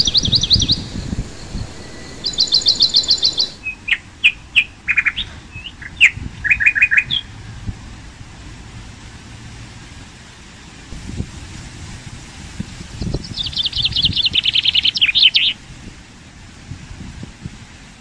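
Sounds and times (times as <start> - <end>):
high bird trill: 0.0 - 3.8
short low bird chirps: 0.0 - 4.0.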